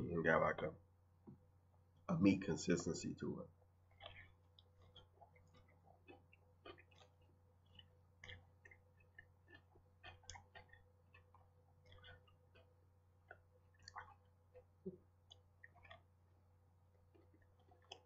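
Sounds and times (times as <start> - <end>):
low steady hum: 0.0 - 18.0
person chewing: 3.6 - 18.0.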